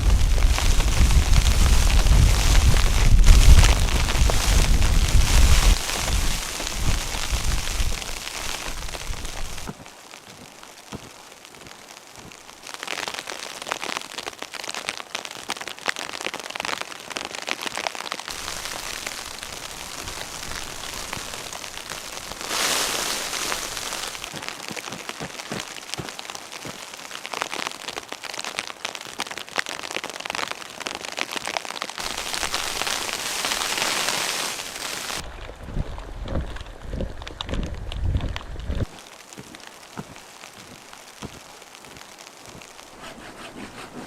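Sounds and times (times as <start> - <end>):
snow pattering against a surface: 0.0 - 13.2, 18.3 - 28.0, 32.0 - 44.0.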